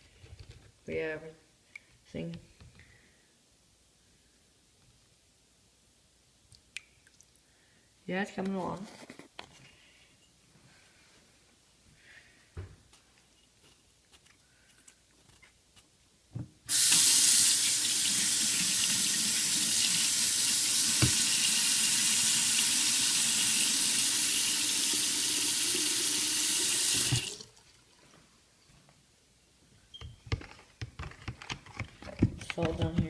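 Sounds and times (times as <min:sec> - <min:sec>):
water tap running: 0:16.7 - 0:27.6.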